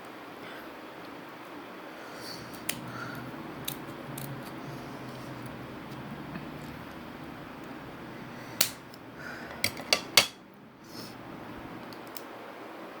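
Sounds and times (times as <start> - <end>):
steady background hiss: 0.0 - 13.0
dishes and cutlery clinking: 9.4 - 10.4.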